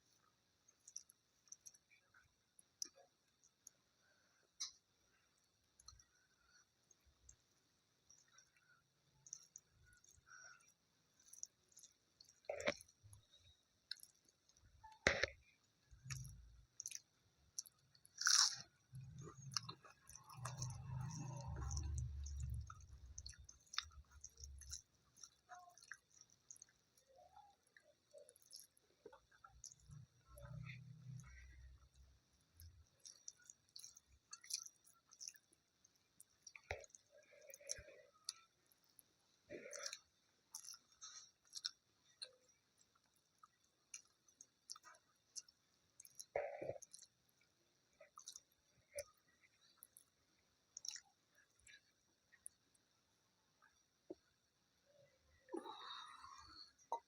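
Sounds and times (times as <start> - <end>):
wet chewing: 0.7 - 3.8, 5.8 - 52.9
wet mouth clicks and smacks: 16.0 - 26.7, 28.1 - 31.4, 33.0 - 35.4, 39.6 - 42.4, 48.0 - 49.1, 50.8 - 51.8
crunchy bite: 17.6 - 24.8.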